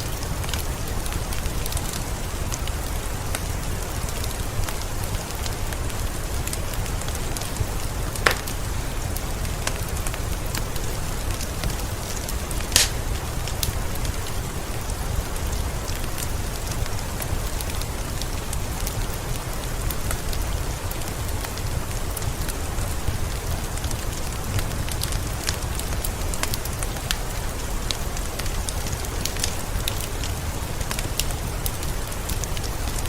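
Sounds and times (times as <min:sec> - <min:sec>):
rain falling: 0:00.0 - 0:33.0
wood fire crackling: 0:00.0 - 0:33.0
sharp fire pops: 0:06.8 - 0:09.0, 0:11.3 - 0:14.2.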